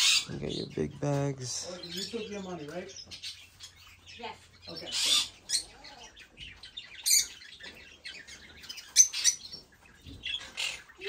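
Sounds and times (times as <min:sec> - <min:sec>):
cage birds chirping: 0:00.0 - 0:11.0.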